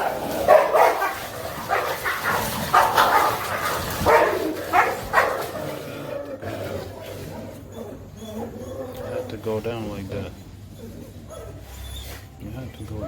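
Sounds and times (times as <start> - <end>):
dogs barking and fighting: 0.0 - 13.0.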